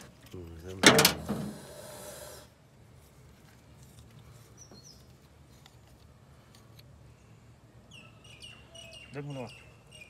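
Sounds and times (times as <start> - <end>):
bird chirping: 4.5 - 5.2, 7.9 - 10.0.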